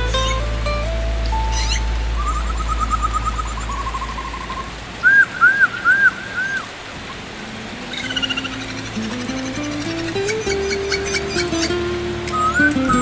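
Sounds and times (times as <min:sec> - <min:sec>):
low drone: 0:00.0 - 0:05.1
soft rising musical notes: 0:00.0 - 0:05.2, 0:07.5 - 0:13.0
steady background hiss: 0:00.0 - 0:13.0
bird singing trills and whistles: 0:01.4 - 0:06.7, 0:07.9 - 0:13.0.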